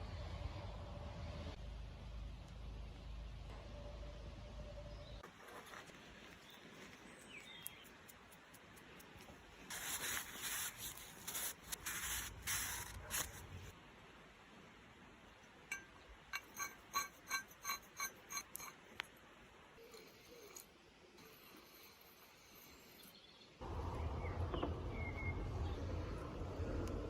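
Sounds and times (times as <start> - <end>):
short hissing bursts: 9.7 - 13.7
light ringing metal clinks: 15.7 - 18.8.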